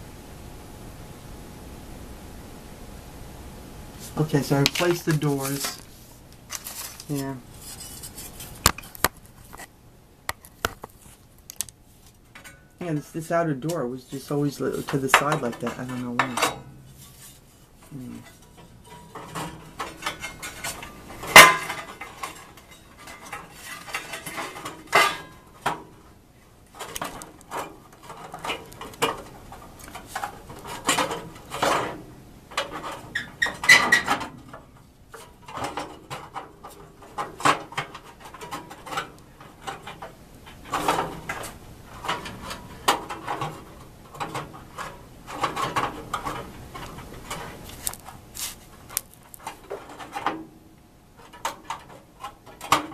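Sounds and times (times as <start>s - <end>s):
sheet metal clanking and rattling: 14.8s - 26.0s, 26.8s - 47.6s.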